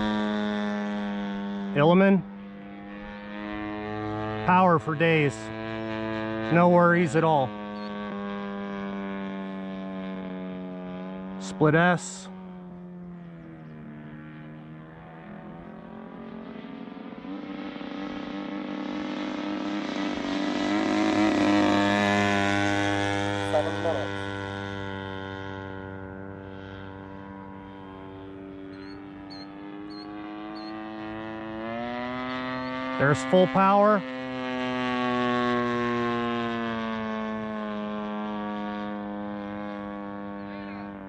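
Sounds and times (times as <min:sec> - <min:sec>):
model plane engine flying by: 0:00.0 - 0:41.0.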